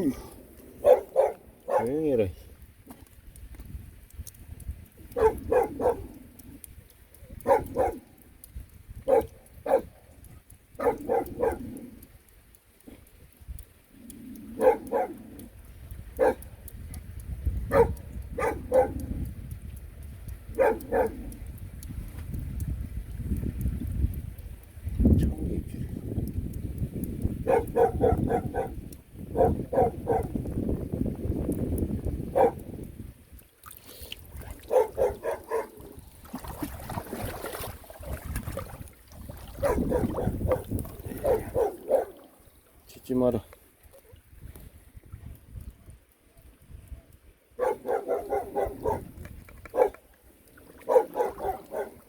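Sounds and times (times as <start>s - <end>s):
dog barking: 0.8s - 2.0s, 5.2s - 6.1s, 7.4s - 8.1s, 9.0s - 10.0s, 10.8s - 11.7s, 14.6s - 15.2s, 16.2s - 16.5s, 17.7s - 19.1s, 20.6s - 21.3s, 27.4s - 30.4s, 32.3s - 32.7s, 34.7s - 35.8s, 39.6s - 42.2s, 47.6s - 49.1s, 49.7s - 50.0s, 50.8s - 52.0s.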